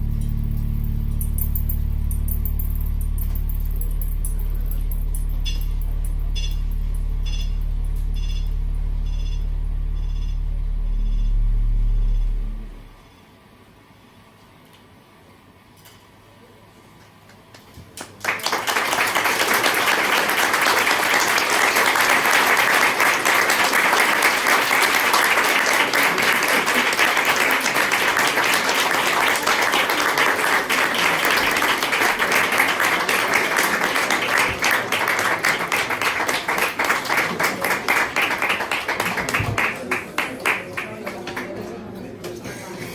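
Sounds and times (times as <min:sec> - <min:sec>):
audience applauding: 0:18.0 - 0:41.8.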